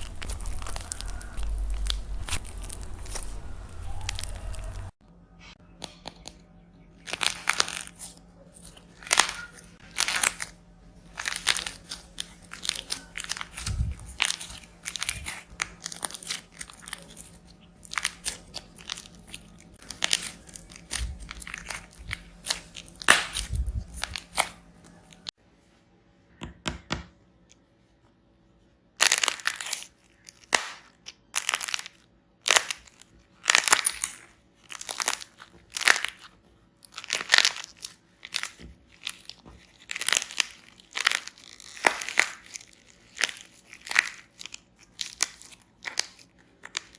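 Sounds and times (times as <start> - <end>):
dried clay crunching by hand: 0.0 - 5.0, 7.0 - 25.3, 29.0 - 46.9.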